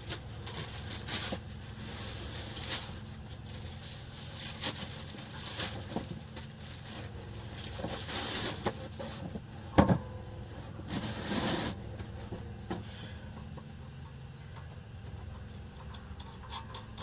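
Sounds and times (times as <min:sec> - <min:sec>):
objects rustling: 0:00.0 - 0:09.4
steady low hum: 0:00.0 - 0:17.0.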